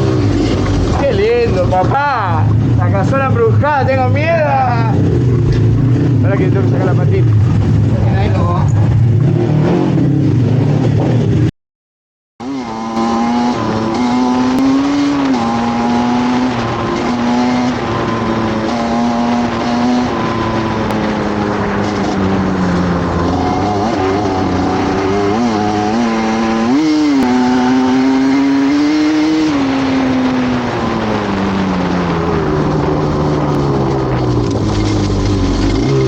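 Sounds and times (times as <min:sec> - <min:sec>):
motorcycle engine running: 0:00.0 - 0:11.5, 0:12.4 - 0:36.0
motorcycle throttle blips: 0:12.8 - 0:28.7.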